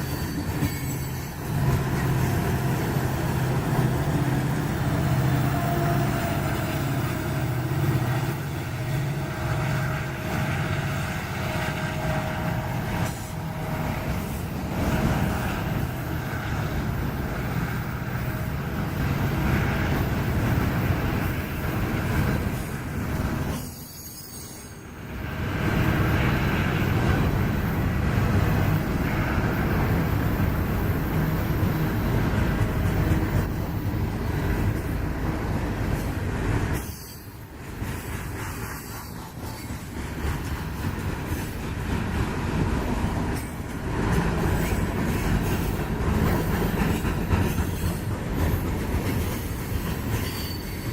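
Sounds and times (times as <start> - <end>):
wheel squeal: 0.0 - 2.1, 23.5 - 24.8, 50.0 - 50.9
train wheels rumbling on rail: 0.0 - 50.9.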